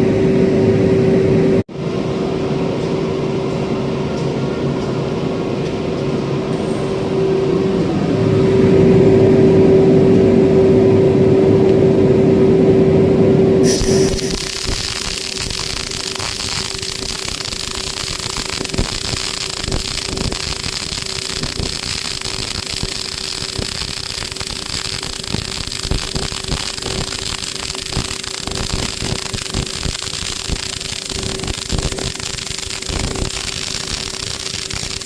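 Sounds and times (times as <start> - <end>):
constant hum: 0.0 - 35.0
welding arc crackling: 13.6 - 35.0.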